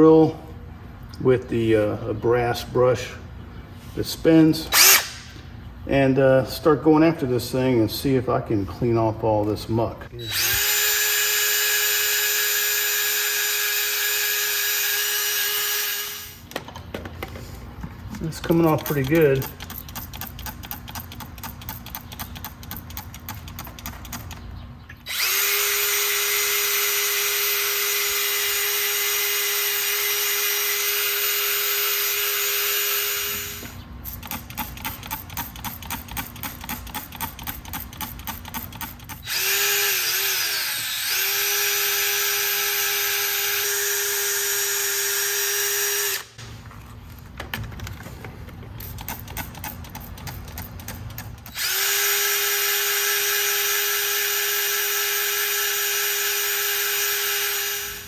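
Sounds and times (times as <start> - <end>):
electric drill with wire brush: 4.7 - 5.4, 10.2 - 16.5, 25.1 - 35.0, 38.2 - 46.4, 51.5 - 58.0
rapid regular ticking: 34.2 - 39.2.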